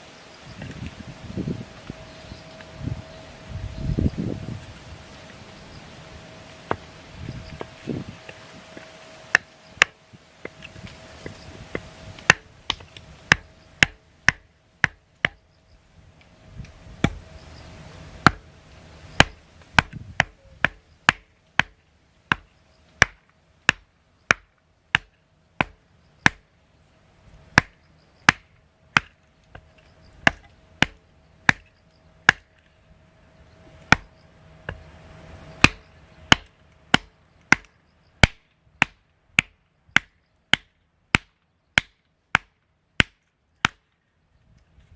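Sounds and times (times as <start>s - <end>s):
axe chopping kindling: 9.3s - 15.4s, 17.0s - 17.2s, 18.2s - 18.5s, 19.2s - 26.5s, 27.5s - 31.7s, 32.3s - 32.6s, 35.6s - 43.9s.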